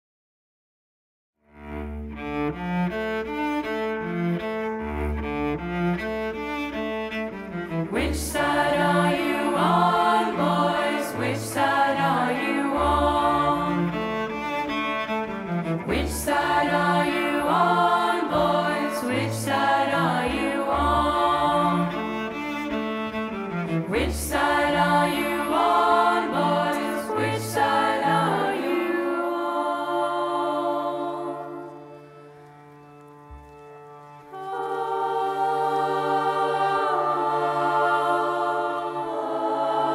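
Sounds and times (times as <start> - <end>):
bowed cello: 1.4 - 39.9
choir singing: 7.5 - 32.1, 34.2 - 39.9.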